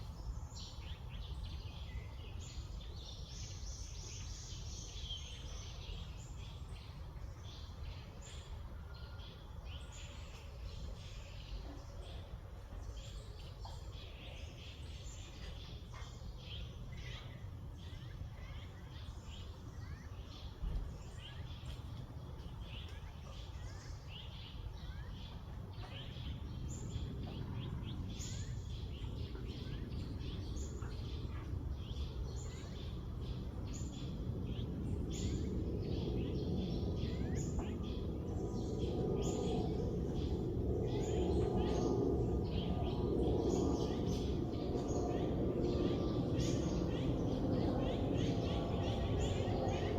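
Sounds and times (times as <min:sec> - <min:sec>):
birds chirping: 0:12.9 - 0:49.9
steady low noise: 0:20.4 - 0:49.9.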